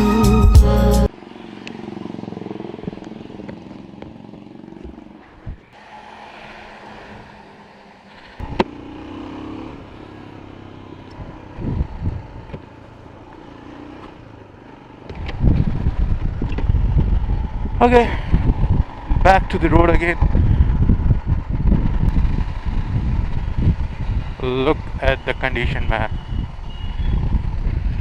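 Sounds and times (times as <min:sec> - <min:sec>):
motorcycle engine running: 0:01.1 - 0:05.7, 0:07.6 - 0:25.4, 0:26.0 - 0:28.0.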